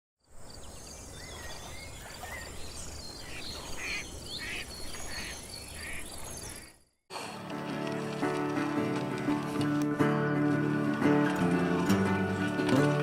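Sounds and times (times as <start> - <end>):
small birds chirping: 0.2 - 7.0.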